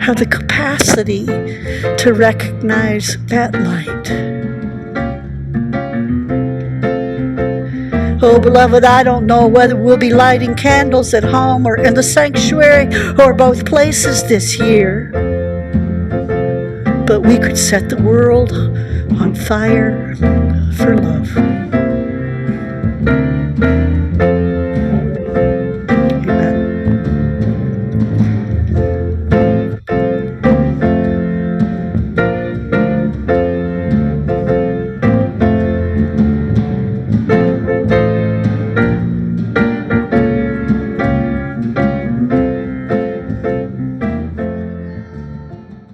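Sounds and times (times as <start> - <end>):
plucked or keyboard instrument: 0.0 - 45.9.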